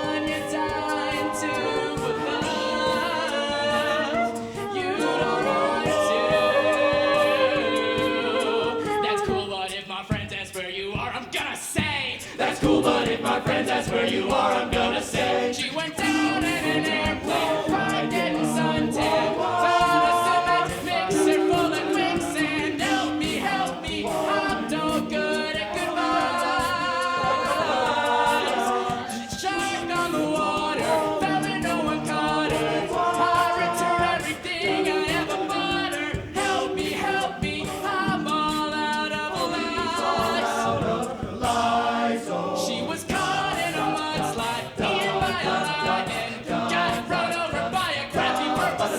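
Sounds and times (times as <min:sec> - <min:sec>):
beatboxing: 0:00.0 - 0:48.9
male a cappella group singing: 0:00.0 - 0:48.9.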